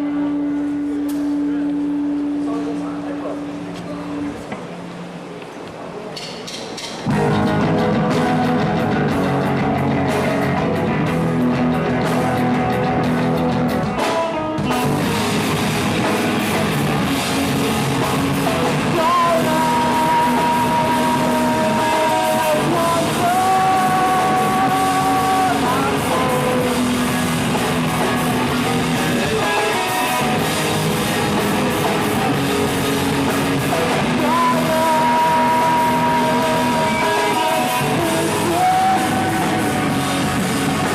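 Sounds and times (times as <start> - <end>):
live rock band playing: 7.0 - 40.9
person singing: 18.6 - 30.5, 33.7 - 40.9.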